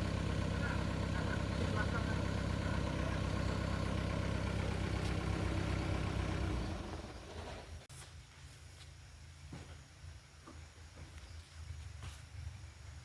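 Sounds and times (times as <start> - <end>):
truck engine humming: 0.0 - 7.9.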